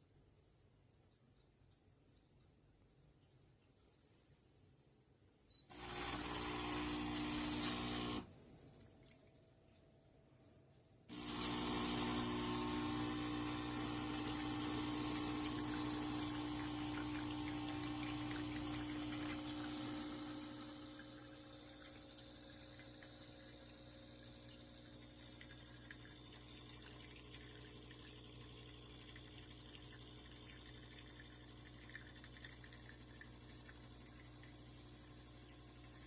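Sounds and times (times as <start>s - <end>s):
faint trickle of liquid: 0.0s - 5.6s, 8.3s - 11.1s, 14.0s - 36.0s
espresso machine pump humming: 5.6s - 8.3s, 11.1s - 36.0s.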